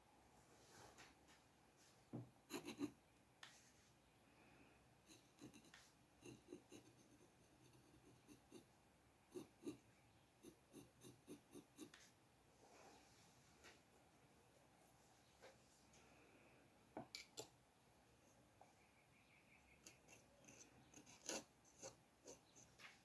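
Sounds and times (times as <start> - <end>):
pencil scratching on paper: 2.5 - 3.0, 5.0 - 12.2, 19.8 - 23.0.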